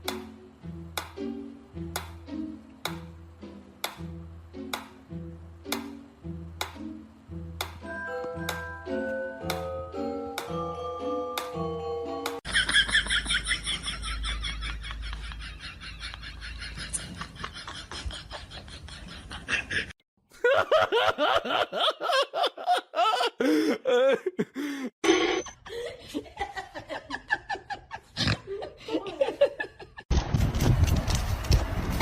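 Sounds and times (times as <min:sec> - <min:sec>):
music: 0:00.0 - 0:12.4
person laughing: 0:12.5 - 0:30.1.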